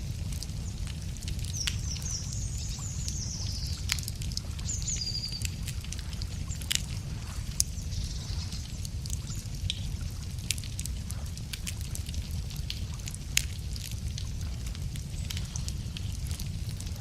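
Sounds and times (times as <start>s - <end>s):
steady low rumble: 0.0s - 17.0s
wood fire crackling and popping: 0.0s - 17.0s
small bird singing: 1.5s - 4.0s, 4.6s - 5.6s.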